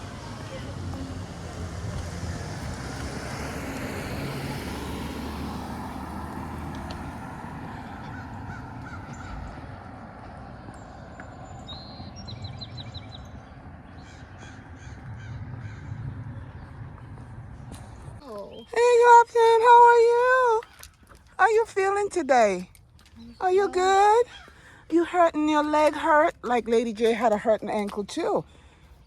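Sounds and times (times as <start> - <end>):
birds chirping: 5.7 - 29.0
low background rumble: 11.8 - 19.1.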